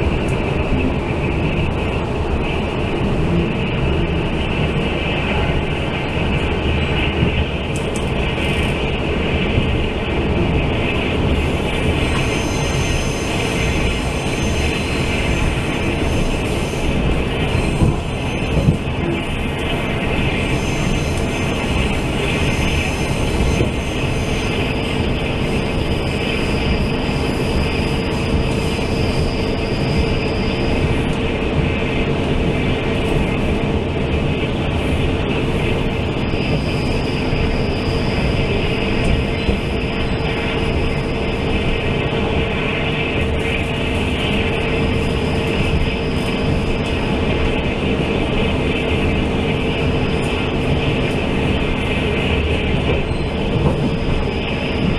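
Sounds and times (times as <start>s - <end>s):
train wheels rumbling on track: 0.0s - 54.9s
faint high whine: 9.6s - 32.2s.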